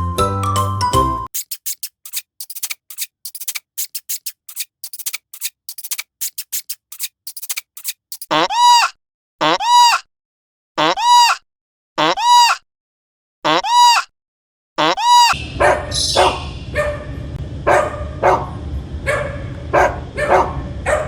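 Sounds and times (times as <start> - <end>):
young goat or lamb bleating: 8.3 - 10.1, 10.8 - 11.4, 12.0 - 12.6, 13.5 - 14.1, 14.8 - 15.4.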